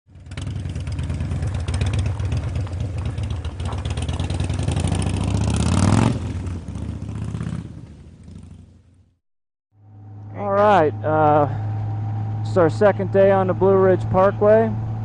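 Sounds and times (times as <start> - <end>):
motorcycle engine running: 0.1 - 9.2, 9.8 - 15.0.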